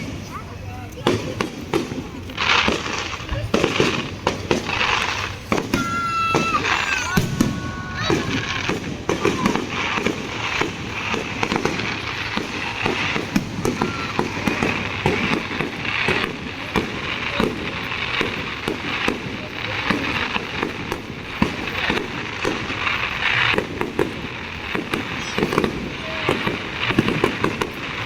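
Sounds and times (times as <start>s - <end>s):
fireworks bangs and crackles: 0.0s - 28.0s
high firework whistle: 4.8s - 16.4s, 24.8s - 28.0s.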